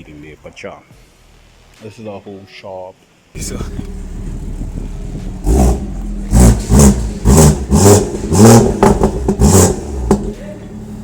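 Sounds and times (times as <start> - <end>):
car exhaust revving sharply: 3.4 - 11.0.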